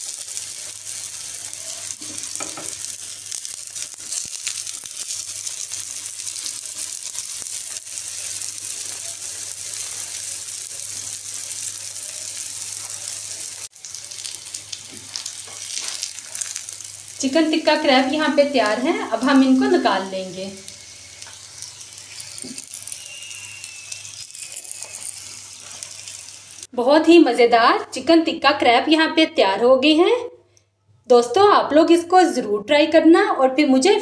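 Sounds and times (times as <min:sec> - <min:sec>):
food sizzling in a frying pan: 0:00.0 - 0:26.7.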